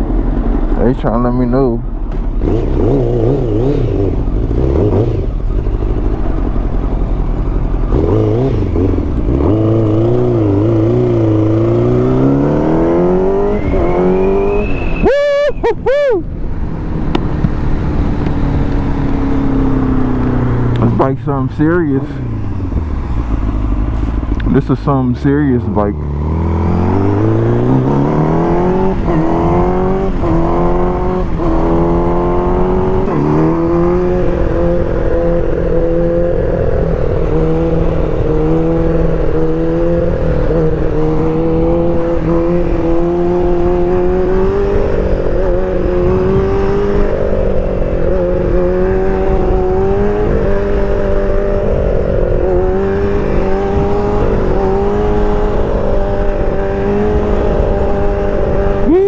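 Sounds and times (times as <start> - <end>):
motorcycle engine revving: 0.0 - 15.7, 16.5 - 59.0.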